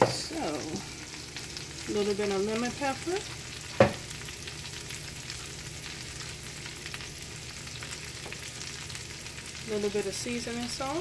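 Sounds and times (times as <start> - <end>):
cabbage sizzling in skillet: 0.0 - 11.0.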